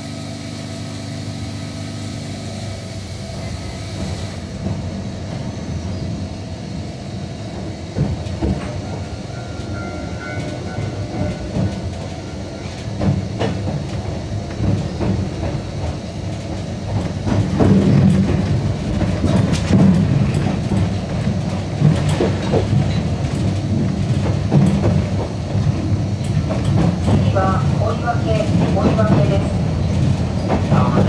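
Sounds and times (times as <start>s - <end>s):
train rumbling on track: 0.0s - 31.0s
wheel clicks over rails: 11.2s - 25.3s.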